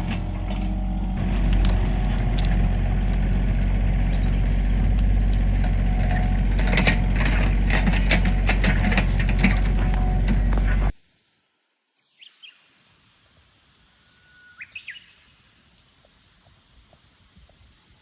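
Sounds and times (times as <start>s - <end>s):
clattering and rattling: 0.0s - 10.9s
engine running steadily: 0.0s - 11.0s.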